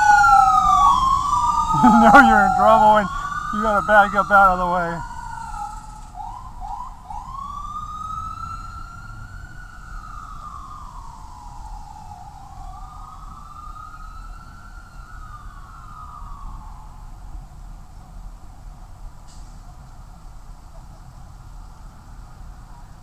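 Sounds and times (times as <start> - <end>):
electronic siren wailing: 0.0 - 5.9.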